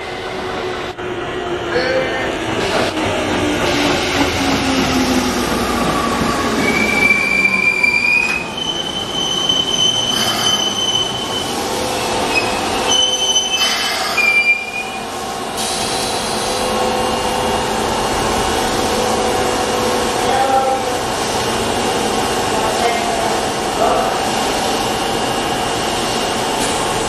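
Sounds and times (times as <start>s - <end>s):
high thin wheel squeal: 6.6s - 11.5s.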